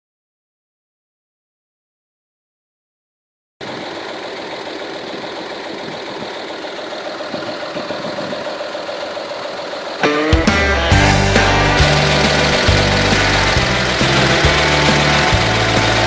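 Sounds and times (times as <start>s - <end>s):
truck engine idling: 3.6s - 16.0s
loud music: 10.0s - 16.0s.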